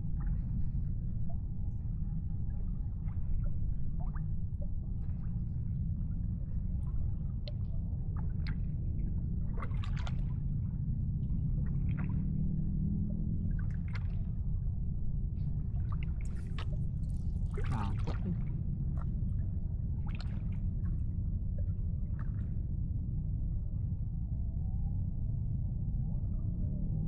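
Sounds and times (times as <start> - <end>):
low rumble: 0.0 - 27.0
water lapping and dripping: 6.7 - 12.7, 13.5 - 14.5, 15.4 - 21.0, 21.6 - 22.6
small splashes: 9.6 - 10.3, 17.4 - 18.4.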